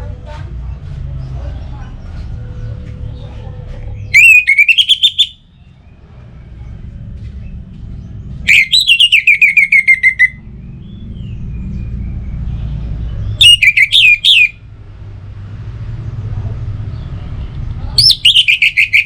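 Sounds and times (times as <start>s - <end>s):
thrush singing: 4.1s - 5.4s, 8.5s - 10.4s, 13.4s - 14.6s, 18.0s - 19.0s.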